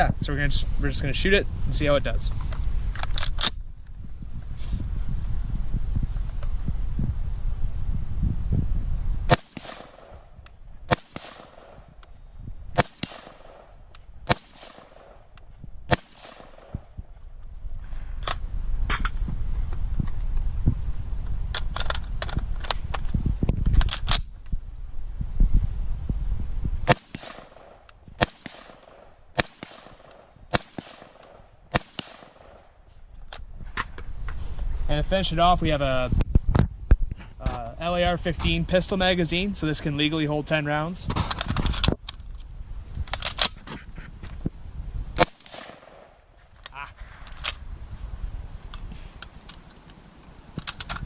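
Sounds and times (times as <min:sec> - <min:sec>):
rifle shots with ringing echo: 0:09.3 - 0:12.0, 0:12.7 - 0:15.3, 0:15.9 - 0:17.0, 0:26.8 - 0:32.8, 0:45.2 - 0:46.2.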